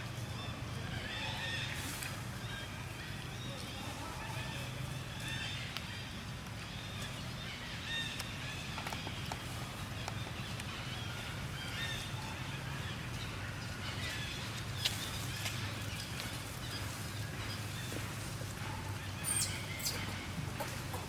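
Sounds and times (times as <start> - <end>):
faint chirping calls: 18.9 - 21.0.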